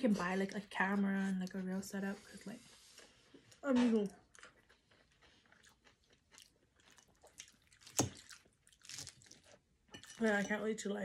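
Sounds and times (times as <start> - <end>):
chewing and biting food: 4.2 - 10.2.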